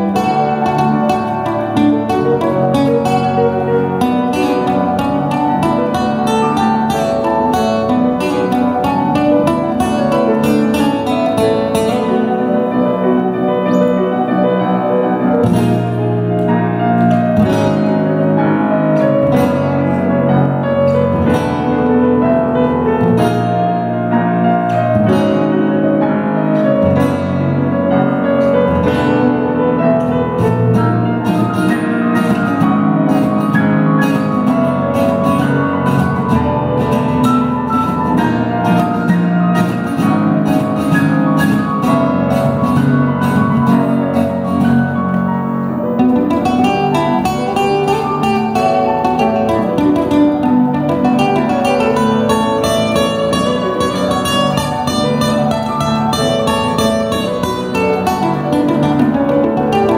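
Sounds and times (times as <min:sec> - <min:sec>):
live piano music: 0:00.0 - 0:59.9.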